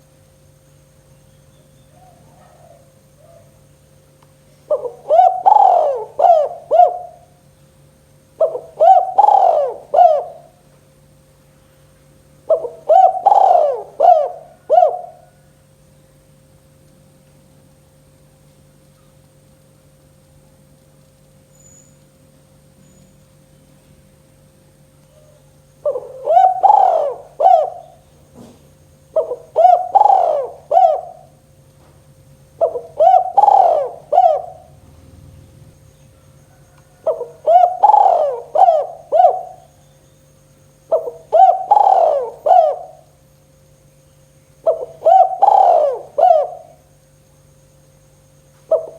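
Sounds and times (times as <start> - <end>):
dove cooing: 1.8 - 3.6, 4.7 - 7.5, 8.4 - 10.7, 12.4 - 15.5, 25.2 - 39.9, 40.8 - 43.3, 44.6 - 46.9, 48.6 - 48.9.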